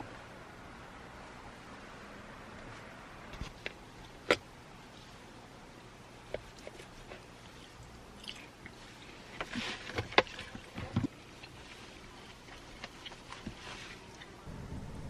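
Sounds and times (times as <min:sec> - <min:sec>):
low steady hum: 0:00.0 - 0:15.0
clicks and knocks of handling: 0:09.4 - 0:11.1.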